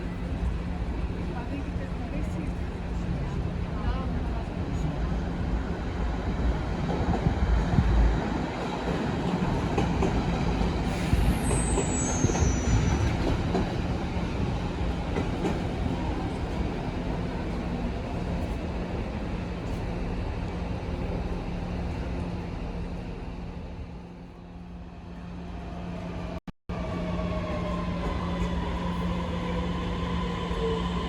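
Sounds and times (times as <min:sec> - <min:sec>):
train rumbling through station: 0:00.0 - 0:31.0
wheel squeal: 0:11.3 - 0:13.2.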